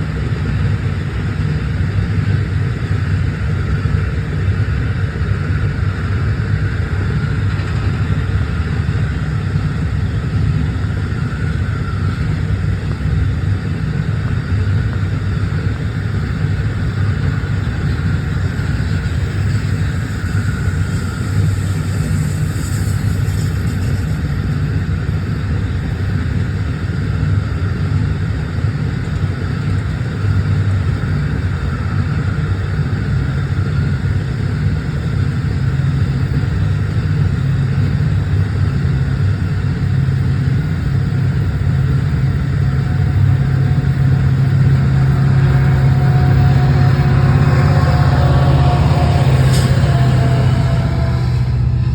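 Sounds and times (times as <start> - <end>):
train rumbling: 0.0 - 51.9
higher steady tones: 39.7 - 51.9.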